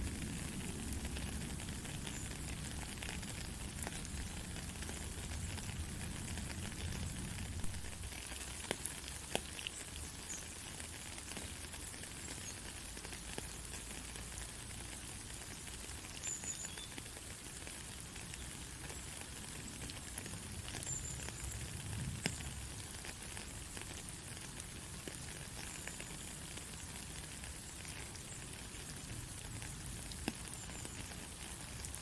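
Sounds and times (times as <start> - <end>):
rain falling: 0.0 - 32.0
scattered raindrops: 0.0 - 32.0.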